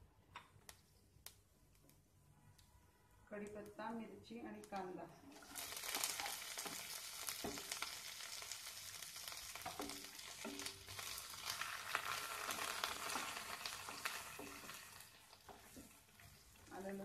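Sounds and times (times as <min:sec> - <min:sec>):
vegetables sizzling in hot oil: 0:05.3 - 0:17.0
spatula scraping and tapping pan: 0:05.9 - 0:08.0, 0:09.3 - 0:17.0.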